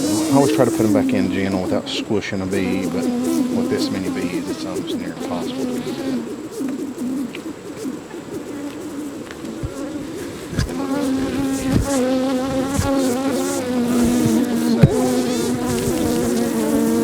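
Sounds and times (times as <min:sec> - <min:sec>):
honeybees buzzing: 0:00.0 - 0:17.0
short knocks: 0:09.6 - 0:16.4.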